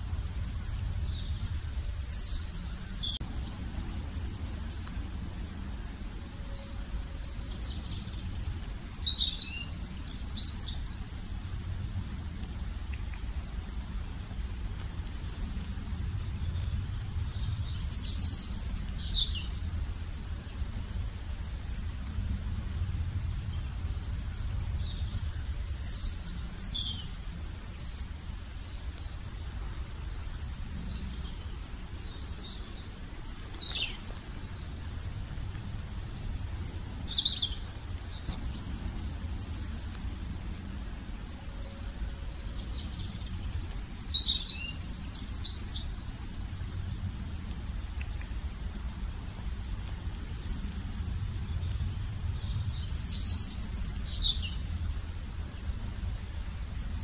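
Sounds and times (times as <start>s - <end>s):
steady low rumble: 0.0s - 57.0s
birds chirping and calling: 0.2s - 3.2s, 36.0s - 46.4s.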